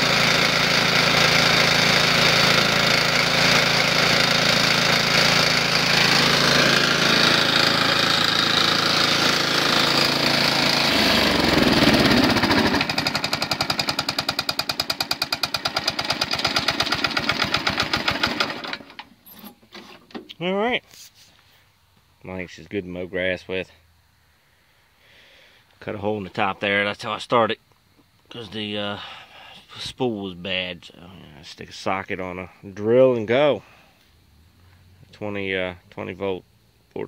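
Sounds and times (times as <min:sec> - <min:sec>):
mower engine with rod knock: 0:05.2 - 0:20.3.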